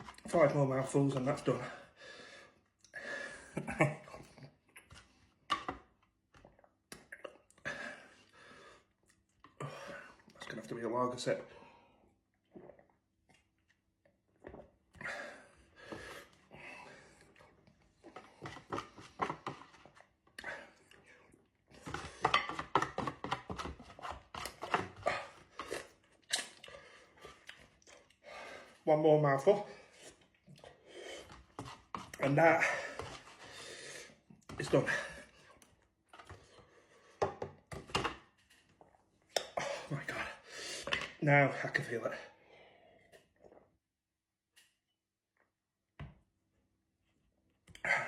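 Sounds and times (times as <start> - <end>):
mouth clicks and smacks: 26.2 - 26.8.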